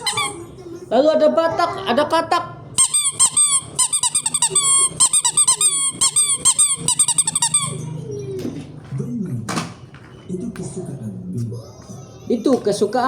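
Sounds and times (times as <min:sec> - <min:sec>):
toy electronic chirping: 0:00.0 - 0:00.5, 0:02.8 - 0:07.9.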